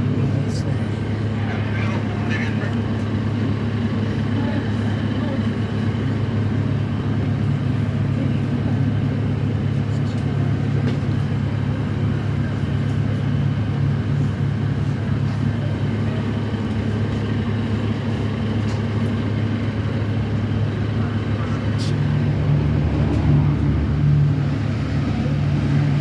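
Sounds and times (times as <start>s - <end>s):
vehicle engine drone: 0.0s - 26.0s.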